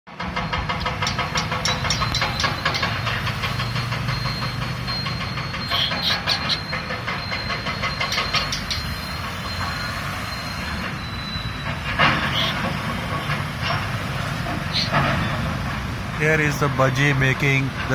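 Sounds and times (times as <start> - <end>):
parrot mimicking engine chugging: 5.6 - 6.8, 14.6 - 15.0.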